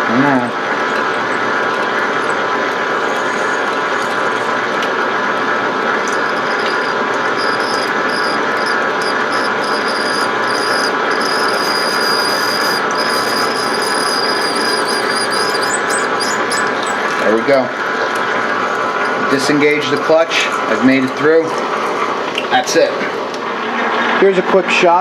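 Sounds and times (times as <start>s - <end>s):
lathe cutting noise: 0.6s - 22.4s
thin high squeal: 6.1s - 17.3s.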